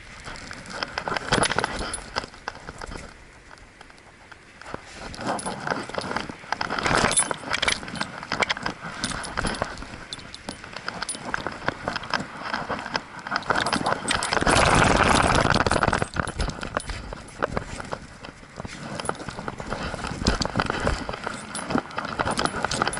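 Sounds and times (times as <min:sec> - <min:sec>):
metal collar tags jingling: 0:00.7 - 0:03.1, 0:05.0 - 0:22.9
rush of noise: 0:11.8 - 0:17.9.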